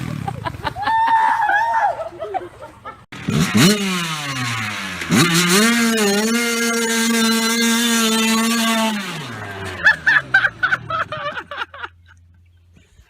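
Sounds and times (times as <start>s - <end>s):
dirt bike engine revving: 0.0s - 0.7s, 3.1s - 11.6s.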